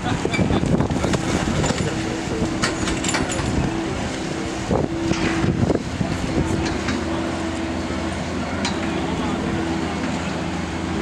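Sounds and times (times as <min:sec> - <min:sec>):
wind noise on microphone: 0:00.0 - 0:06.8.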